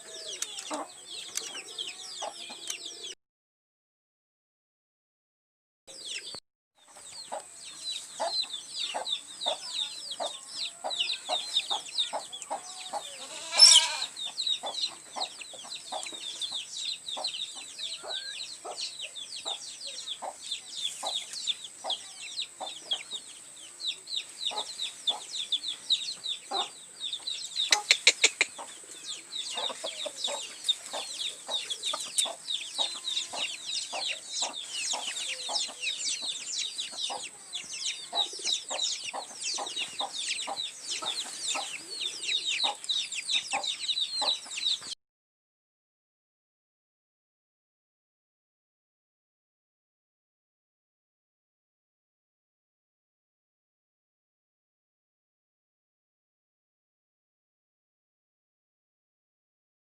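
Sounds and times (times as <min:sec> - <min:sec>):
chickens clucking: 0:00.0 - 0:03.1, 0:06.0 - 0:44.9.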